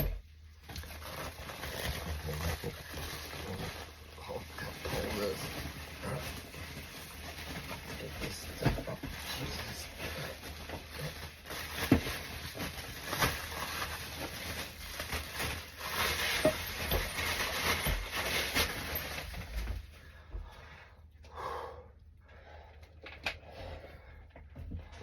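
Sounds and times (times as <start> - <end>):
packing material crinkling: 0.0 - 19.8.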